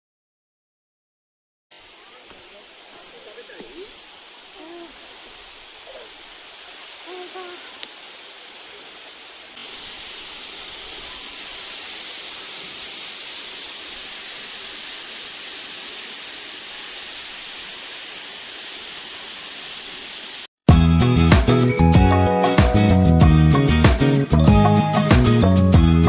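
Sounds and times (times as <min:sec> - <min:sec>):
waterfall rushing: 0:01.7 - 0:20.5
faint distant voices: 0:01.8 - 0:07.8.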